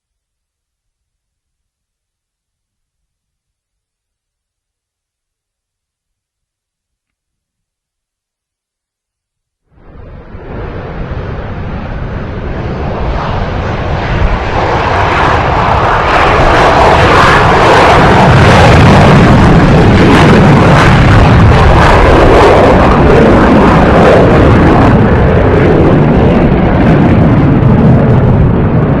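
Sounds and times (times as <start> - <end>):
loud jet engine noise: 9.8 - 29.0.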